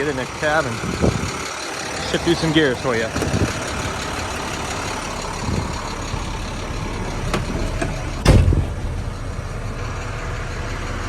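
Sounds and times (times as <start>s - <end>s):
diesel engine idling: 0.0s - 11.0s
sharp thump: 7.3s - 8.9s.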